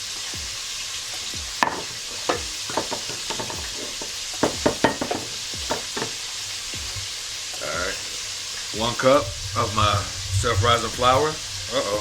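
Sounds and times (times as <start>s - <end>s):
chicken wings deep-frying in oil: 0.0s - 12.0s.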